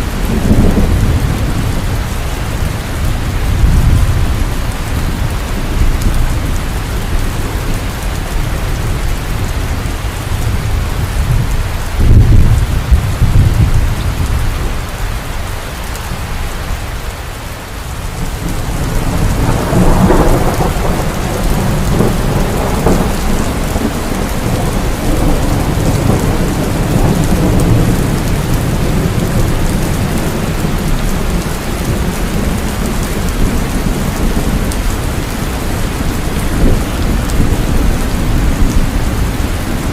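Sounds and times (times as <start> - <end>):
low rumbling thunder: 0.0 - 16.4, 18.1 - 39.9
heavy rain falling: 0.0 - 39.9
loud thunderclap: 0.1 - 2.1, 10.5 - 14.5, 18.3 - 34.7.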